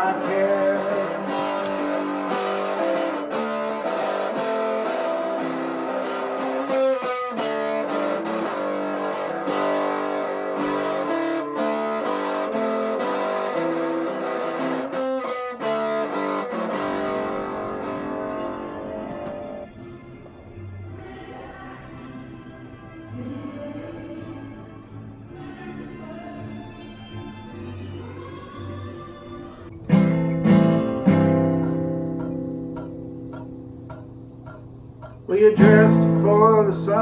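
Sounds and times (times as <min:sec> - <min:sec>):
guitar chords plucked and strummed: 0:00.0 - 0:20.5, 0:29.7 - 0:37.0.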